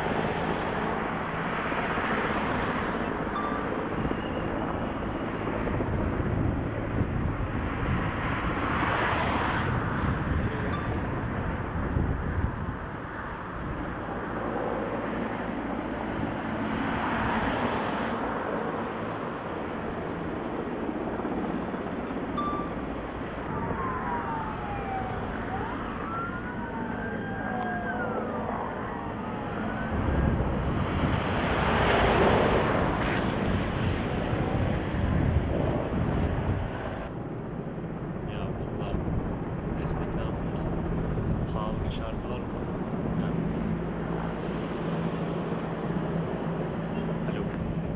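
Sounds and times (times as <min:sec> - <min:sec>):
helicopter running: 0:00.0 - 0:47.9
faint siren wailing: 0:00.1 - 0:17.6, 0:20.9 - 0:32.2.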